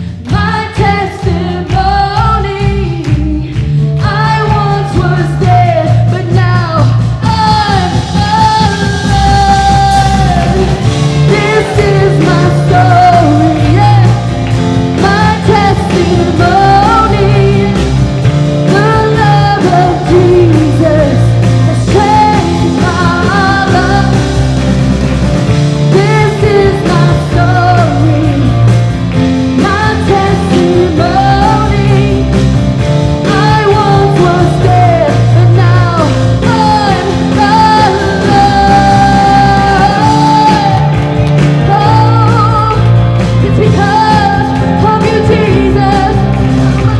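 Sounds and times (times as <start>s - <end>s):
bass line: 0.0s - 46.9s
rock band playing: 0.0s - 46.9s
people singing melody: 8.6s - 18.0s.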